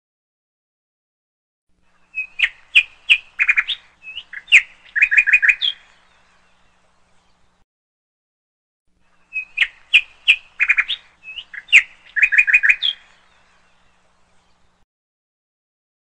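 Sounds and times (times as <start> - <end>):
songbird singing: 1.8 - 7.6, 9.0 - 14.8.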